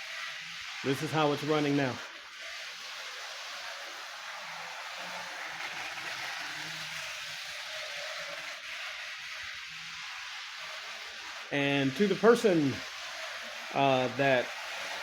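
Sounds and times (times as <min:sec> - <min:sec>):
model train motor whir: 0:00.0 - 0:15.0
wheels on rails: 0:00.0 - 0:15.0.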